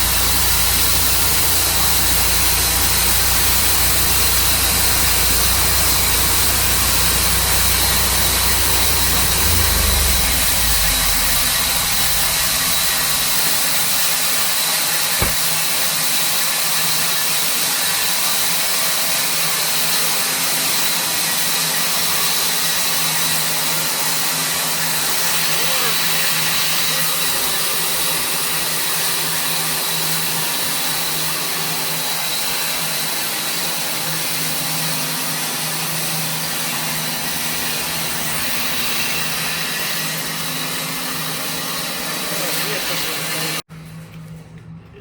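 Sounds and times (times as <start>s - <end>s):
deep low rumble: 0.0s - 13.8s
sawmill engine running: 0.0s - 14.5s, 15.1s - 15.7s, 32.1s - 43.6s.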